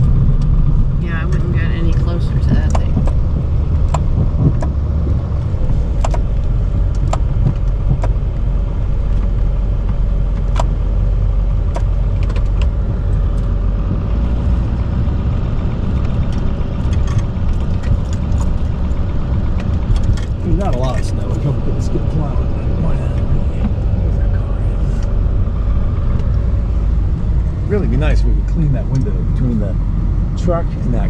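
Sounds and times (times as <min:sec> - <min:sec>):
sharp clicks and knocks: 0:00.0 - 0:14.9, 0:15.8 - 0:21.6
diesel truck engine droning: 0:00.0 - 0:31.0.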